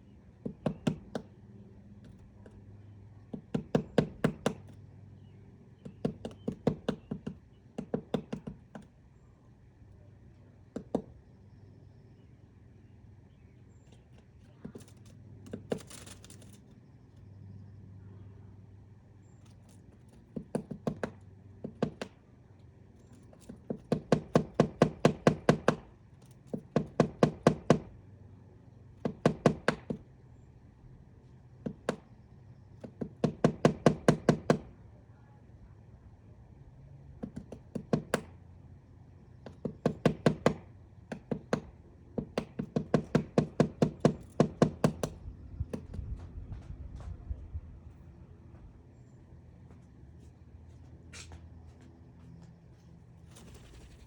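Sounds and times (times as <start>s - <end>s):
woodpecker pecking wood: 0.3s - 1.4s, 2.0s - 4.8s, 5.8s - 9.1s, 10.6s - 11.2s, 13.3s - 17.0s, 19.3s - 22.2s, 23.2s - 28.0s, 28.9s - 30.1s, 31.6s - 34.7s, 37.1s - 38.4s, 39.3s - 46.1s.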